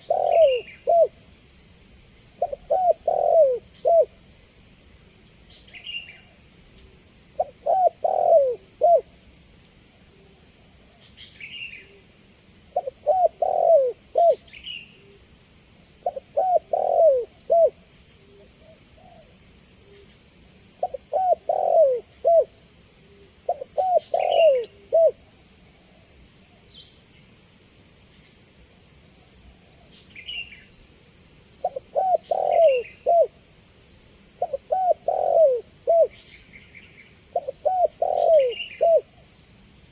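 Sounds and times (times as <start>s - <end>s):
faint high bird chirps: 0.0s - 1.1s, 23.5s - 25.1s, 31.7s - 33.3s, 34.4s - 39.0s
dove cooing: 0.0s - 1.2s, 2.4s - 4.2s, 7.4s - 9.1s, 12.8s - 14.4s, 16.0s - 19.3s, 20.8s - 22.5s, 23.5s - 25.2s, 31.6s - 33.4s, 34.4s - 36.2s, 37.3s - 39.1s.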